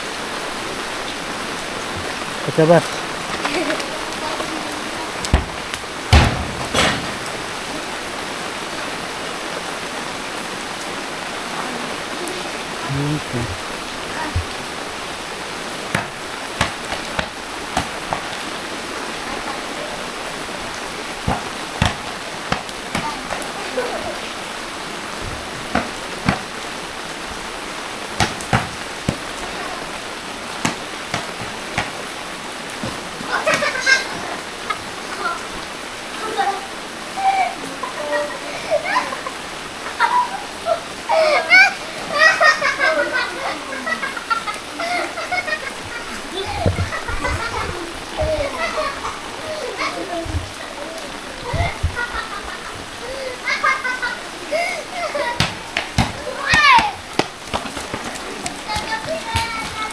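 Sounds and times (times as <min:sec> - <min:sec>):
steady rain falling: 0:00.0 - 0:59.9
sharp taps: 0:55.4 - 0:59.9.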